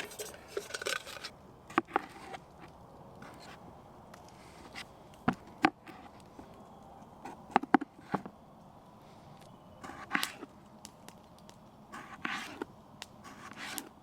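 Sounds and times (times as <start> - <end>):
rustling scrape of food: 0.0 - 2.4.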